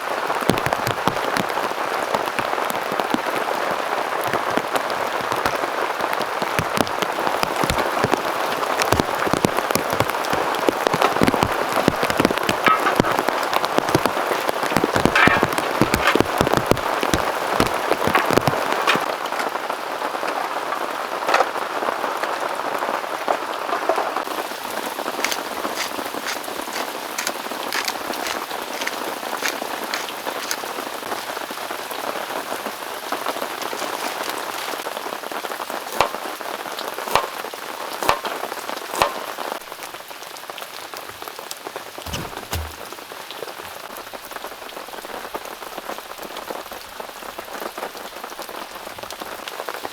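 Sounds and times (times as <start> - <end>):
heavy rain falling: 0.0 - 49.9
sharp raindrop hits: 6.5 - 21.8.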